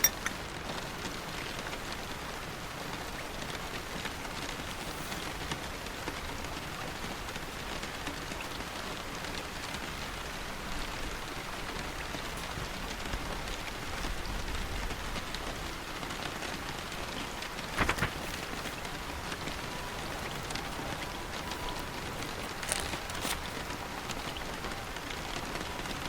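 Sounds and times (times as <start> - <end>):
rain falling: 0.0 - 26.0
paper page turning: 17.8 - 18.7, 21.4 - 24.3.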